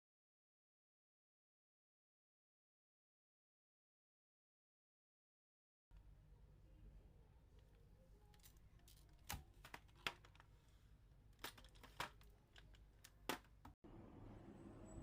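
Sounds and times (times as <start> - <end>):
hands handling objects: 7.6 - 13.8.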